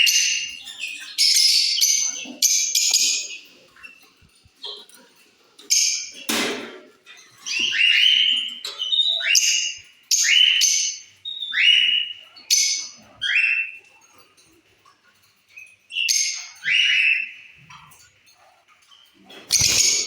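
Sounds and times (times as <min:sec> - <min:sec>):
lovebirds shrill calls: 0:19.3 - 0:20.0.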